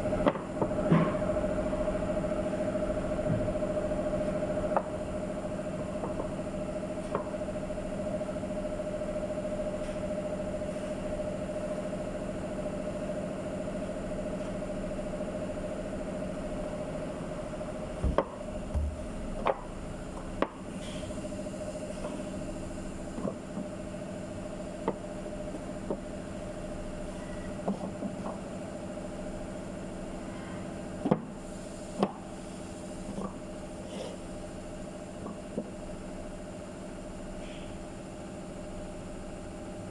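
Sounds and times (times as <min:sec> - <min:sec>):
sharp knocks and clicks: 0:18.0 - 0:19.7
machine hum: 0:18.0 - 0:20.1.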